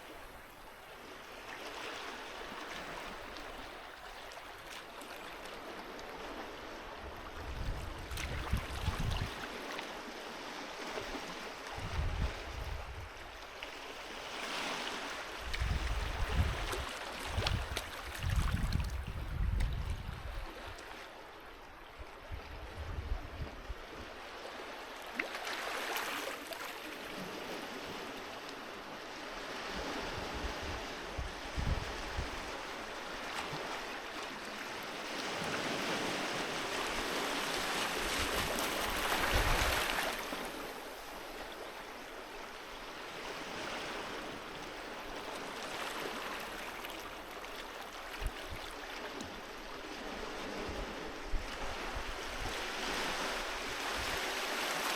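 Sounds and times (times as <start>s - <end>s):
sea waves washing onto beach: 24.0s - 54.9s.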